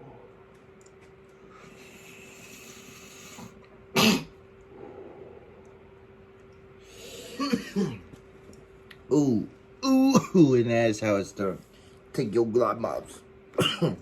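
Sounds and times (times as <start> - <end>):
faint hum: 0.0 - 14.0
person coughing: 3.9 - 4.4, 7.3 - 8.1, 13.6 - 14.0.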